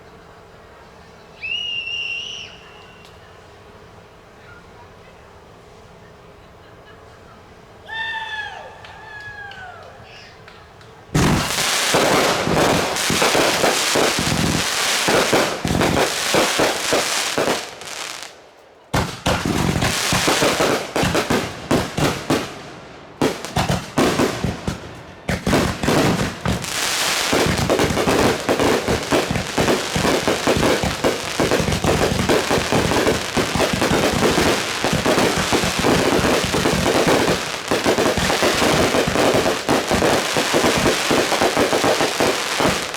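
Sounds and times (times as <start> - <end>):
fireworks crackling pops and bangs: 10.4 - 42.9.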